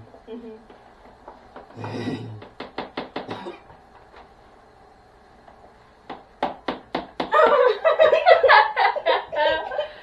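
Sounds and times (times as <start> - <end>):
low voice hum: 1.8 - 2.5.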